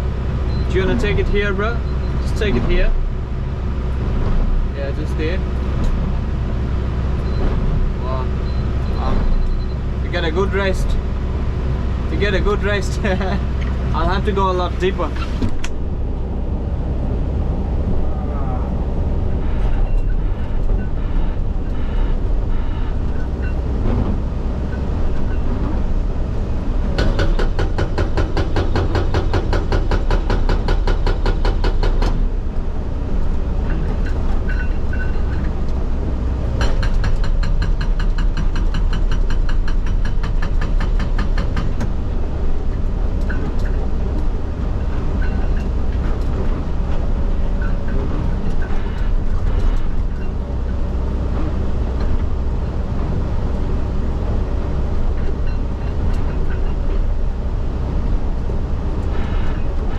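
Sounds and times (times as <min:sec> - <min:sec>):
diesel engine under load: 0:00.0 - 0:59.9
hydraulic breaker hammering rock: 0:26.9 - 0:32.3, 0:36.5 - 0:41.9.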